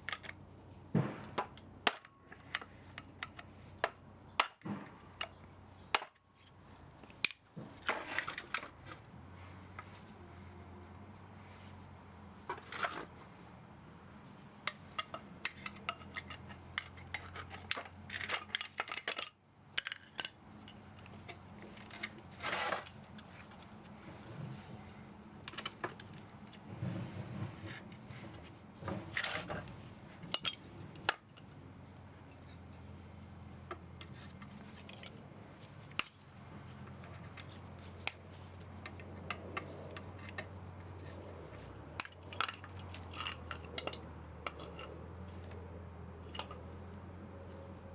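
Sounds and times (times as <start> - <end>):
metal scraping: 20.6 - 31.5.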